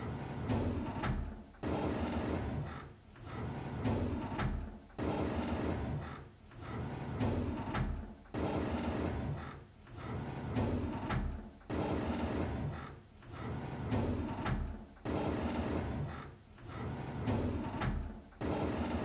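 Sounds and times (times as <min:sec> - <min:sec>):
drawer sliding open: 0:16.7 - 0:18.2.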